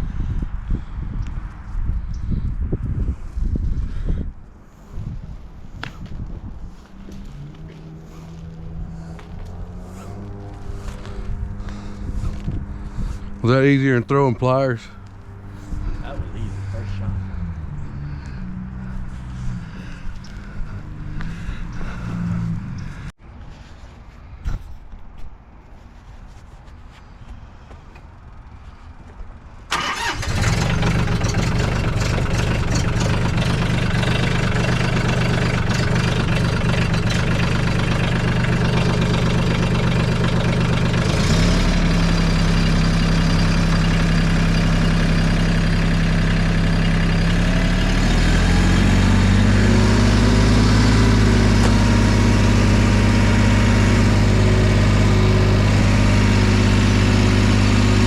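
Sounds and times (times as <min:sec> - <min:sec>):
engine running: 0:05.1 - 0:23.2, 0:29.7 - 0:58.0.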